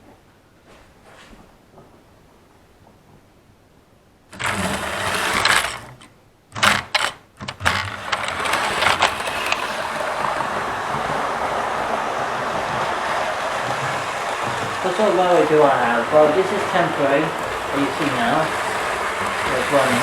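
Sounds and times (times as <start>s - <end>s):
model train motor whirring: 4.3s - 20.0s.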